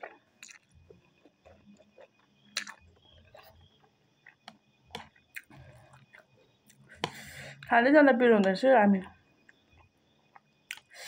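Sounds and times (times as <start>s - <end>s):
mouth clicks and smacks: 0.0s - 3.6s, 9.8s - 11.0s
person chewing noodles: 0.0s - 7.6s, 9.5s - 11.0s.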